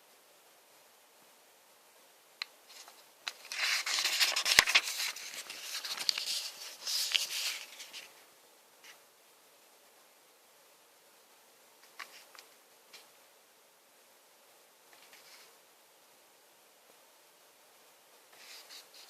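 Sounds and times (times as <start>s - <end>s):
packaging crinkling and rustling: 2.7s - 8.1s.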